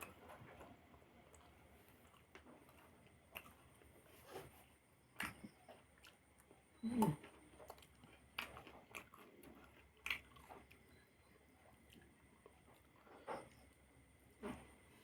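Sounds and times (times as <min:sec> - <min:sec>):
person chewing with mouth sounds: 0:05.2 - 0:13.0.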